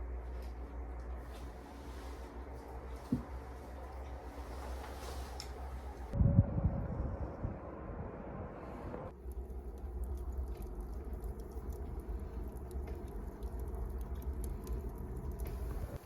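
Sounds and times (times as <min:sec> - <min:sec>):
wood fire crackling: 0:09.1 - 0:16.0.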